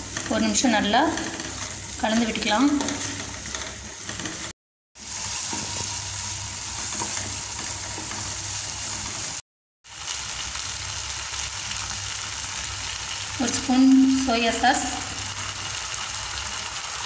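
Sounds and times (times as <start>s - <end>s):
wooden spatula scraping pan: 0.0s - 4.5s, 6.7s - 9.4s
food sizzling in oil: 0.0s - 17.0s.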